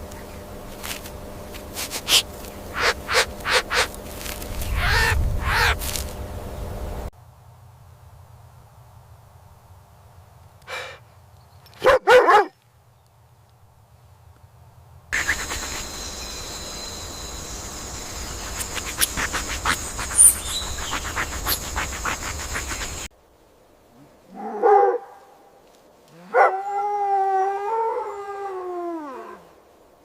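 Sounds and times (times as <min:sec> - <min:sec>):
hiss with clicks: 0:15.2 - 0:16.4, 0:18.1 - 0:23.1
dog howling: 0:26.3 - 0:29.4.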